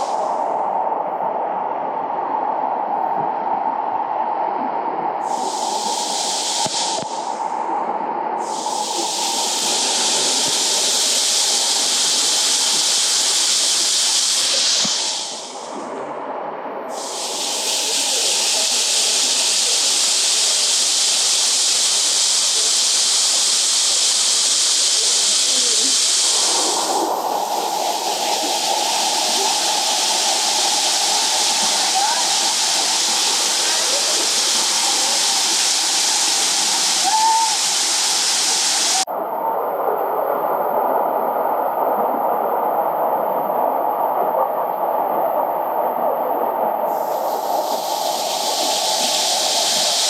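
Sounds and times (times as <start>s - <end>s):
waterfall rushing: 5.2s - 7.3s, 8.4s - 15.6s, 16.9s - 39.1s, 46.9s - 50.0s.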